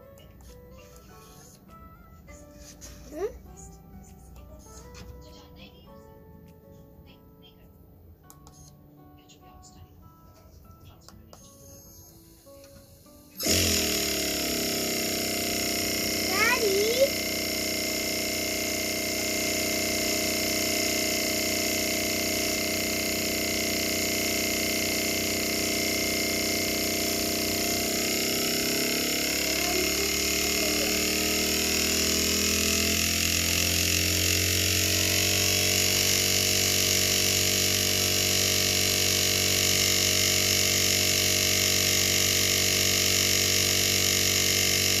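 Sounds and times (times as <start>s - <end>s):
compressor electrical whine: 11.6s - 45.0s
deeper motor hum: 11.7s - 45.0s.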